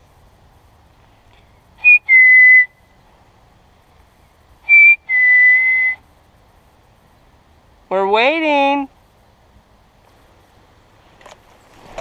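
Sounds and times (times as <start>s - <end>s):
two-note whistle call: 1.8s - 2.8s, 4.7s - 6.0s.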